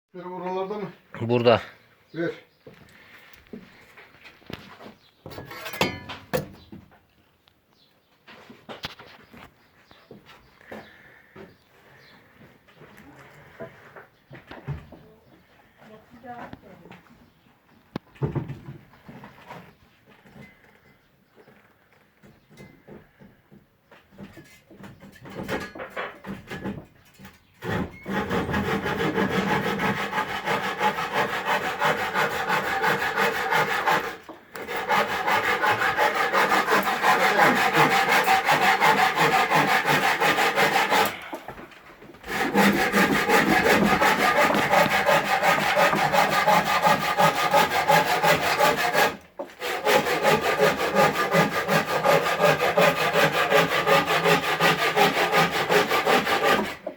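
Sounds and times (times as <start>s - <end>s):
saw cutting wood: 27.6s - 41.4s, 42.2s - 56.9s.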